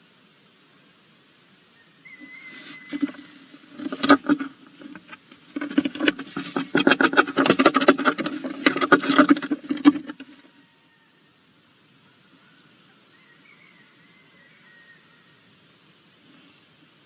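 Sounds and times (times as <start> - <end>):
owl scratching in wooden box: 2.4 - 10.5.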